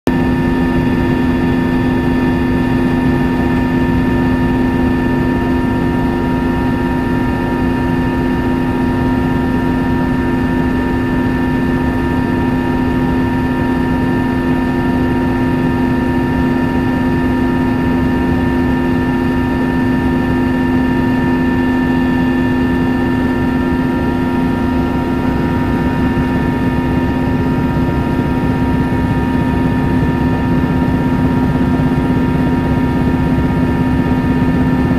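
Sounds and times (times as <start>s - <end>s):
helicopter engine and rotor drone: 0.1s - 34.9s.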